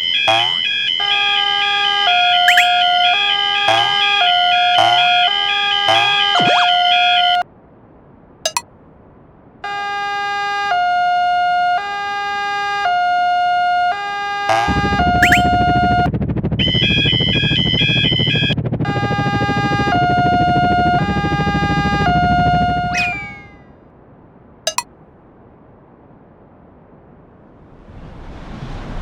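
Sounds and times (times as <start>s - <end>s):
electronic warning tones: 0.3s - 0.6s, 2.5s - 2.8s, 4.8s - 5.1s, 14.5s - 15.5s.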